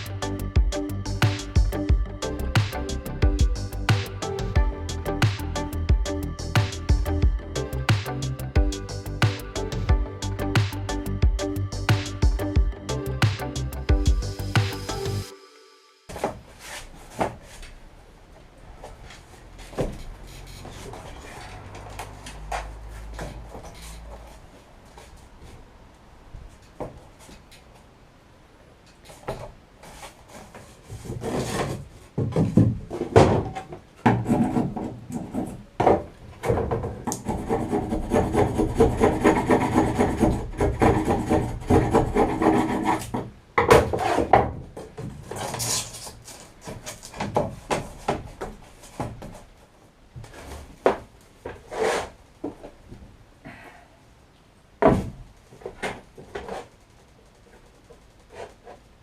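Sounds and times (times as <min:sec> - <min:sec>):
hand saw cutting foam: 0:37.0 - 0:44.3.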